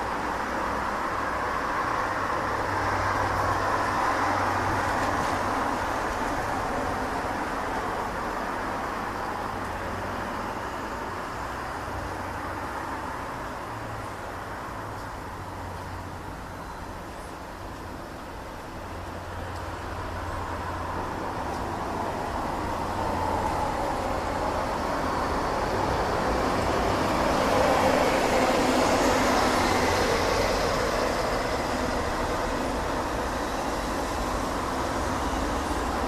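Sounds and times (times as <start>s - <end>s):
distant jet airliner roar: 19.9s - 36.0s.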